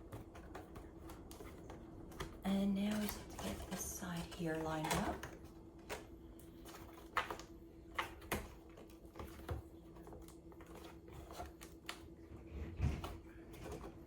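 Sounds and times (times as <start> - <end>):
cardboard panels tapping and scraping: 0.0 - 14.0.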